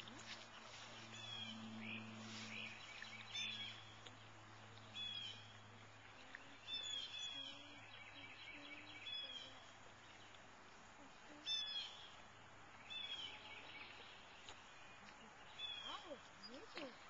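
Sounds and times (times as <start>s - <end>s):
birds chirping: 0.0s - 17.0s
faint low hum: 0.0s - 17.0s.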